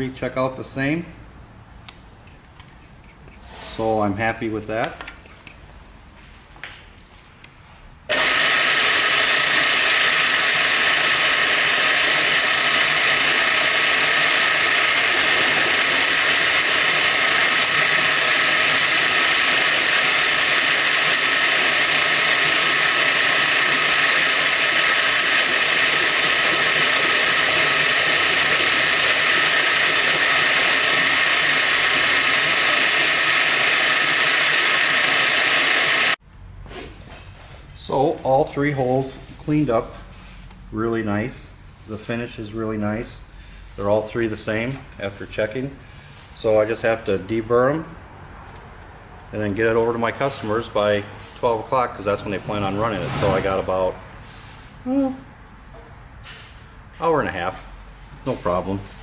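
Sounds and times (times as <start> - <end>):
milling machine cutting: 8.1 - 36.2.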